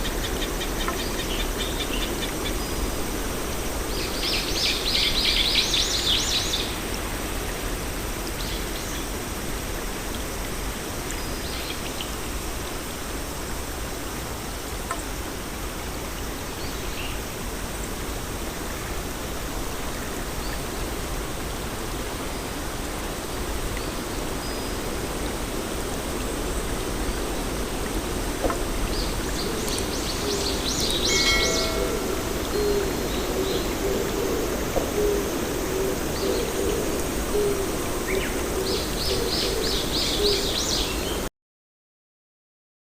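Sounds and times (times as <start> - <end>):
bird chirping: 29.0 - 34.1.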